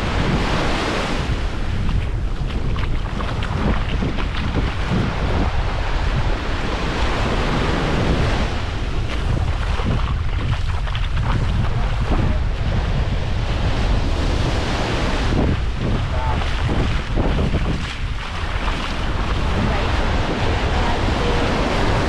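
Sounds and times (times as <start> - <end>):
surf washing on shore: 0.0 - 22.0
wind buffeting the microphone: 0.0 - 22.0.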